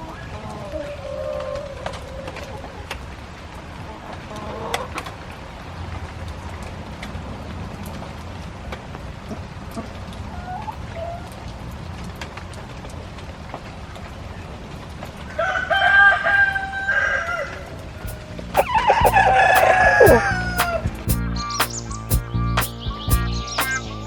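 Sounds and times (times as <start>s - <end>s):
faint chicken clucks: 15.4s - 23.9s.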